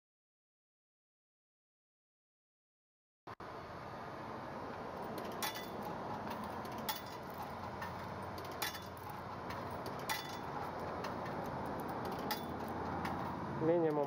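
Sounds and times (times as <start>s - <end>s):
steady background hum: 3.4s - 14.0s.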